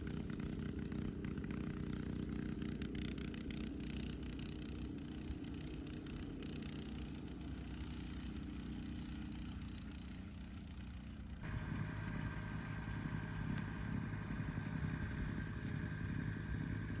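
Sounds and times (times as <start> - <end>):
engine running: 0.0 - 17.0
louder engine with whine: 0.0 - 17.0.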